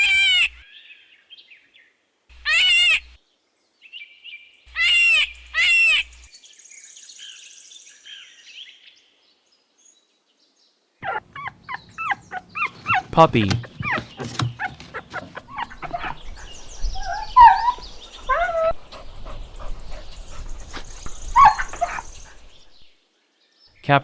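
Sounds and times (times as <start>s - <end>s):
faint bird chirps: 11.0s - 22.6s.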